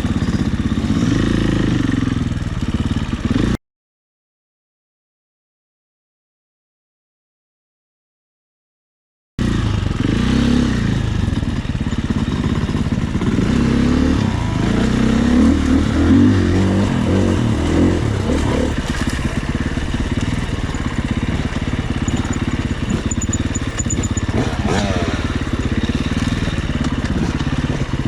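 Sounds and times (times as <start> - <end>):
dirt bike engine revving: 9.4 - 28.0.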